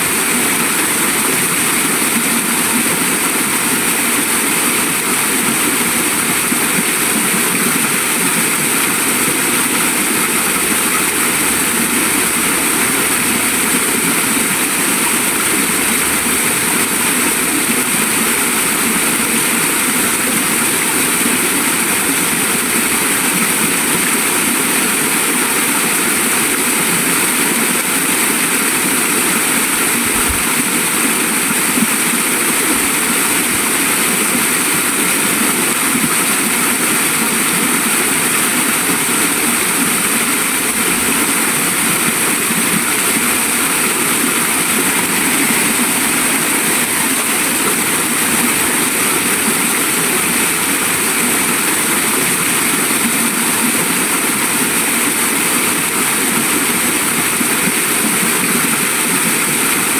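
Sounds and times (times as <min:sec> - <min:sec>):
waterfall and stream rushing: 0:00.0 - 0:59.9.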